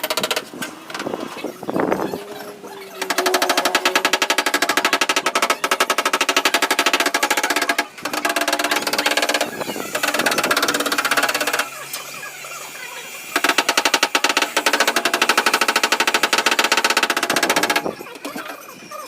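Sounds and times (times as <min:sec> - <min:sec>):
power tool rattling: 0:00.0 - 0:18.6.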